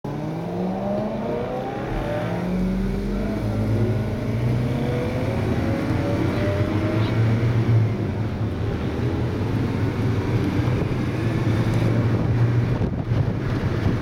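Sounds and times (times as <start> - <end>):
car engine accelerating: 0.1 - 14.0.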